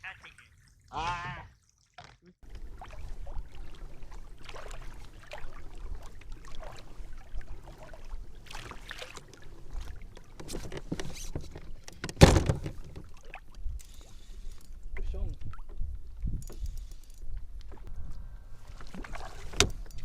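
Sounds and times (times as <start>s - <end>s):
rustling water splashes: 0.0s - 16.9s, 17.6s - 20.0s
knocks on boat: 12.0s - 13.1s.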